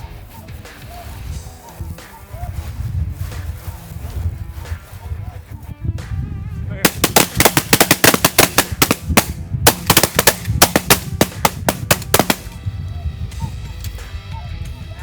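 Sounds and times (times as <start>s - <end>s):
low wind rumble: 1.0s - 15.0s
shotgun blasts: 6.9s - 12.6s.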